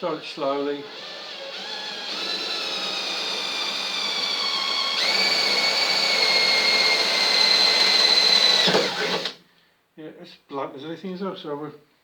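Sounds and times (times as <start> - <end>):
electric drill whine: 0.0 - 9.4.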